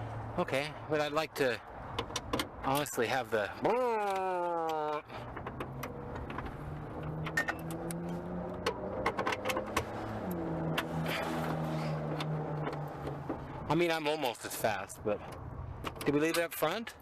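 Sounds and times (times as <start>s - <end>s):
clinks of tools and metal parts: 7.0s - 9.8s.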